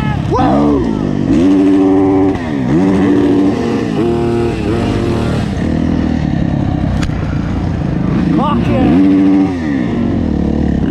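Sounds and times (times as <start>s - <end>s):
motocross engine revving: 0.0s - 10.9s.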